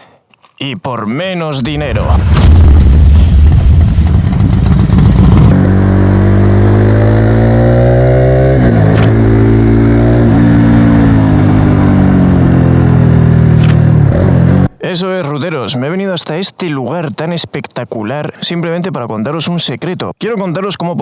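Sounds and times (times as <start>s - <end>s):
motorcycle engine accelerating: 1.7s - 14.8s.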